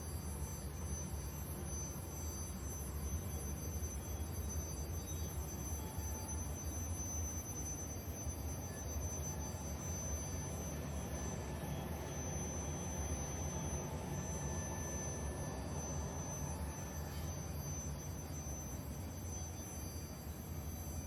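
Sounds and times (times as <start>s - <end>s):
faint high-pitched tones: 0.0s - 21.0s.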